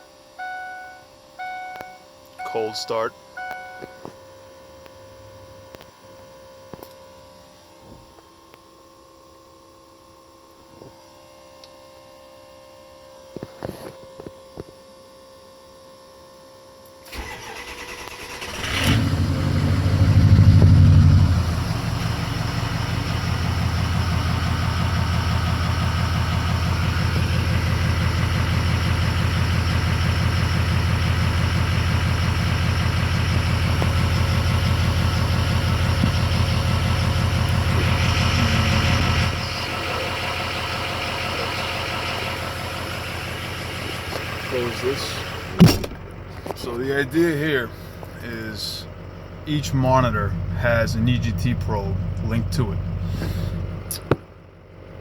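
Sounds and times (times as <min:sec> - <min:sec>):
faint steady hum: 0:00.0 - 0:17.2
diesel engine starting and idling: 0:17.0 - 0:55.0
starter motor cranking: 0:17.1 - 0:19.1.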